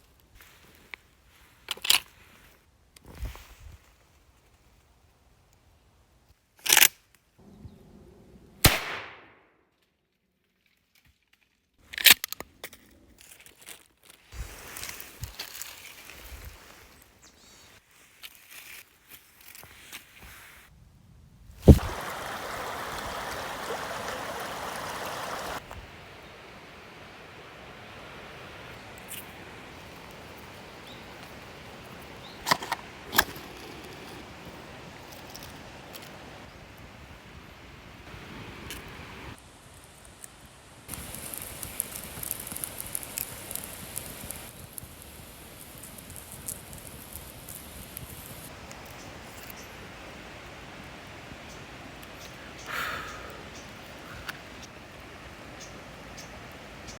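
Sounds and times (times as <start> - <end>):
sharp cracks and snaps: 1.6 - 2.2, 6.6 - 7.3, 8.6 - 9.8, 10.9 - 15.8, 40.0 - 49.6
sharp fire pops: 8.6 - 9.4, 21.6 - 22.4, 40.9 - 49.0
wood campfire hissing: 14.3 - 17.8, 21.6 - 57.0
short rustling burst: 21.6 - 25.7.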